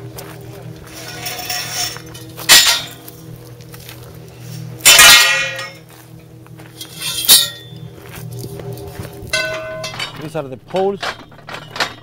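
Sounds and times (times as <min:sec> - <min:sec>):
sharp ringing clinks: 0:06.9 - 0:07.8, 0:09.3 - 0:12.0.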